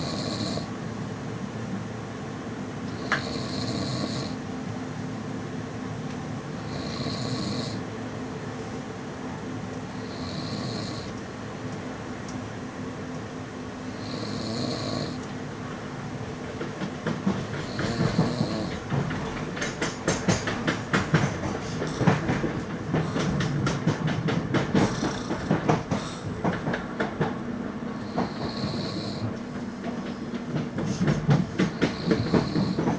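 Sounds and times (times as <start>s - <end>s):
train running rumble: 0.0s - 32.9s
wheels clattering over rail joints: 16.4s - 32.9s.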